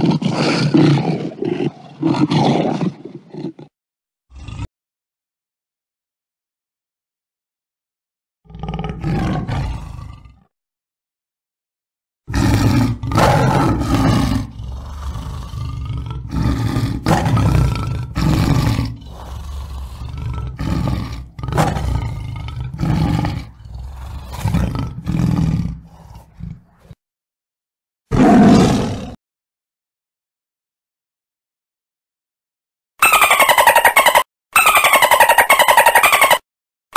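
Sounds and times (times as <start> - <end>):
tiger roaring and growling: 0.0 - 3.7, 4.3 - 4.7, 8.5 - 10.5, 12.3 - 27.0, 28.1 - 29.2.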